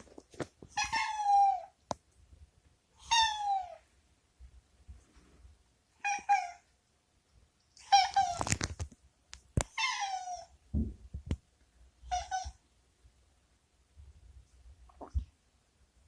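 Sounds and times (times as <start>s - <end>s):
cat meowing: 0.8s - 1.7s, 3.0s - 3.8s, 9.6s - 10.5s, 12.0s - 12.6s.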